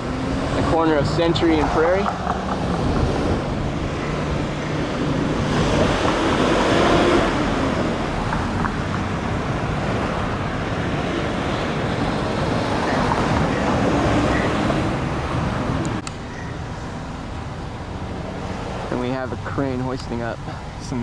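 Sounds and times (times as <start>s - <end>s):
wind rumble on microphone: 0.0s - 16.8s
road traffic passing: 0.0s - 21.0s.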